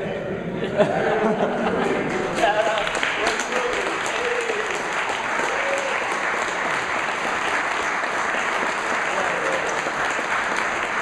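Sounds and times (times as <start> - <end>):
crowd applauding: 1.8 - 11.0.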